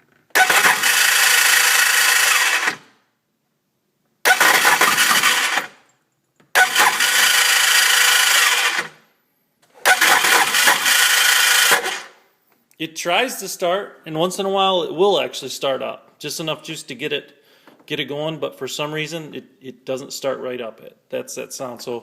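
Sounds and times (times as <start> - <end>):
electric starter whirring: 0.3 - 3.0, 4.2 - 5.8, 6.5 - 9.0, 9.8 - 12.2.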